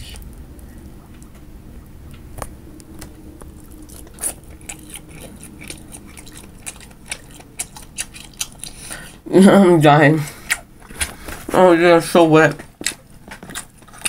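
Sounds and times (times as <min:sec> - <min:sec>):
person chewing wet food: 0:02.4 - 0:09.3, 0:10.3 - 0:11.6, 0:12.5 - 0:14.0.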